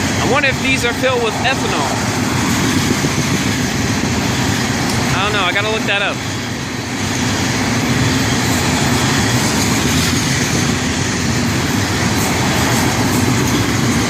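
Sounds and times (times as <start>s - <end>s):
freight train rolling by: 0.0s - 14.0s.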